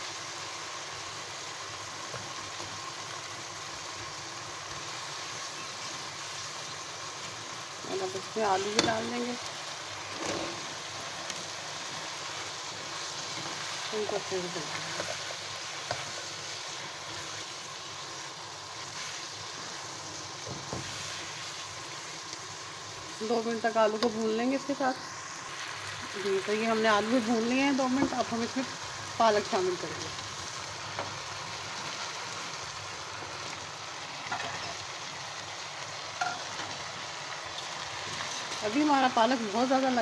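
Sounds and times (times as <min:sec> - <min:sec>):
food sizzling in a wok: 0:00.0 - 0:40.0
spatula scraping a pan: 0:10.0 - 0:10.8
spatula scraping a wok: 0:10.0 - 0:11.0, 0:34.2 - 0:34.8.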